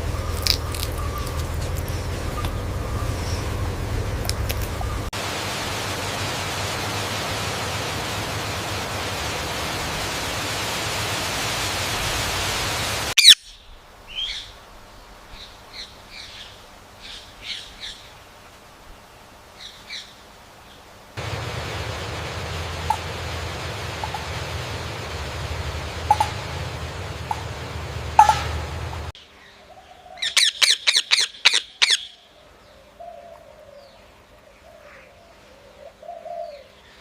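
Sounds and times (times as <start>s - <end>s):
steady hiss: 0.0s - 29.2s
parrot sharp call: 13.2s - 13.6s.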